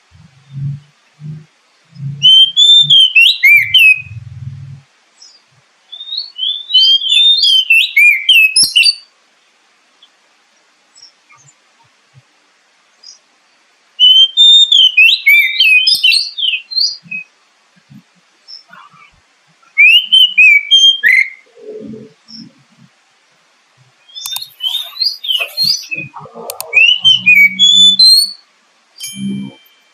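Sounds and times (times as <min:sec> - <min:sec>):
bird song whistled phrases: 0:02.2 - 0:04.2, 0:05.9 - 0:09.1, 0:14.0 - 0:17.3, 0:19.8 - 0:21.5, 0:24.0 - 0:28.4.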